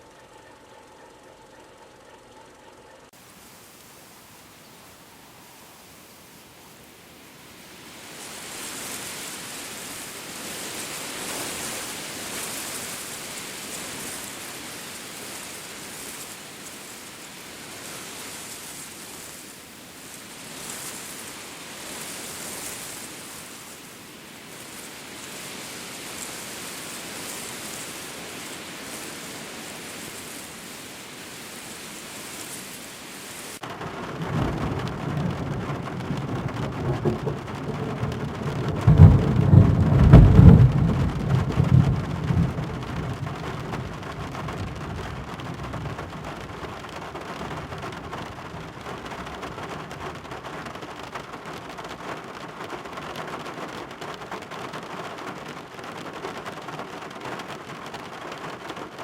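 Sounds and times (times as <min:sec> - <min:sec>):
steady rain: 0:00.0 - 0:59.0
steady hiss: 0:03.1 - 0:33.9
thunder rumble: 0:33.7 - 0:50.8.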